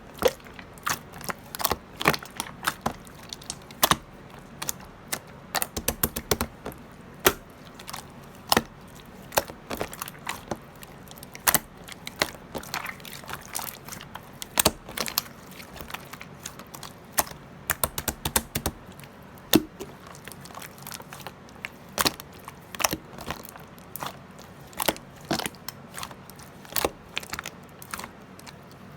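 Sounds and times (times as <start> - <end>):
sharp clicks and taps: 5.6 - 7.5, 17.7 - 18.8.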